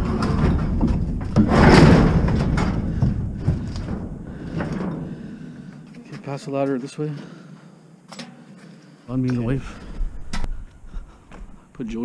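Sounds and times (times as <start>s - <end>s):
metal knocks and clunks: 0.0s - 5.4s.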